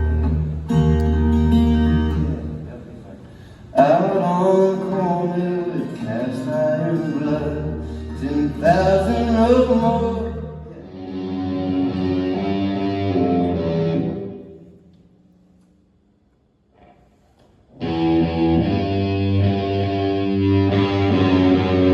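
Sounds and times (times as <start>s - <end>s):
bass guitar: 0.0s - 2.7s, 6.4s - 14.4s, 17.7s - 21.9s
electric guitar chords: 0.0s - 2.8s, 3.8s - 14.8s, 17.7s - 21.9s.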